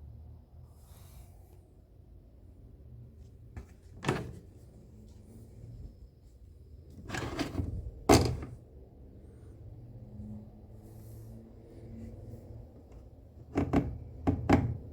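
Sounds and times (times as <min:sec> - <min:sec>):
washing machine knocks: 0:13.5 - 0:14.9.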